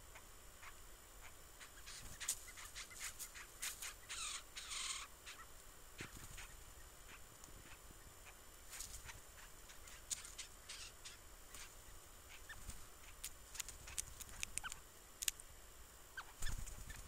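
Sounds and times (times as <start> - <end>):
birds clicking and chirping: 0.0 - 15.4, 16.2 - 17.0
bird wings fluttering: 1.8 - 4.0, 6.0 - 6.7, 12.4 - 14.8, 16.3 - 17.0.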